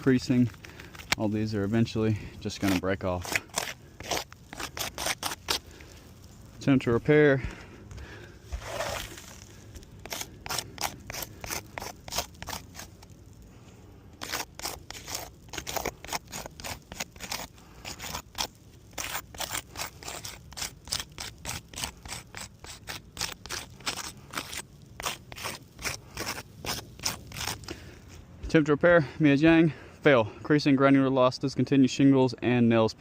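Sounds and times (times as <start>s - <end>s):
roof shingles scraping and crunching: 0.0s - 28.2s.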